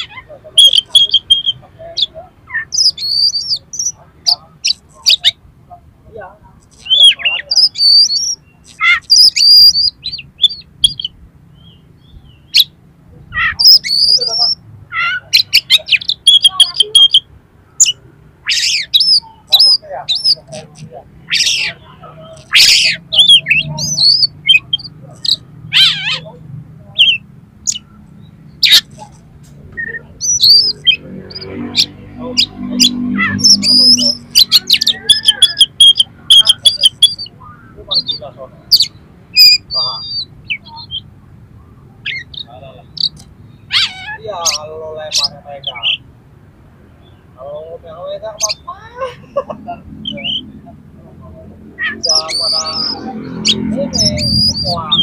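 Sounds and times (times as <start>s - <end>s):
magpie-robin singing: 0.0s - 5.4s, 6.6s - 49.0s, 49.8s - 55.0s
bird singing whistles and chirps: 2.5s - 5.3s, 6.8s - 12.7s, 29.8s - 37.3s, 51.8s - 55.0s
harsh rasping bird notes: 6.6s - 41.1s, 42.0s - 46.1s, 51.6s - 55.0s.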